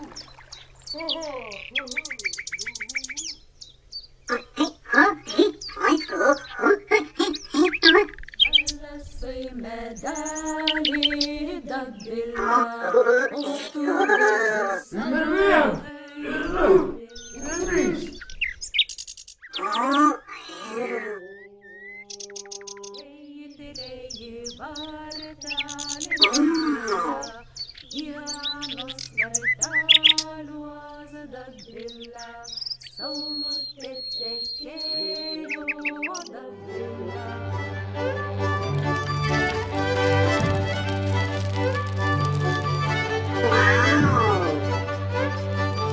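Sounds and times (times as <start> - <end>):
birds chirping: 0.0 - 45.9
voice-like babble: 4.3 - 8.2.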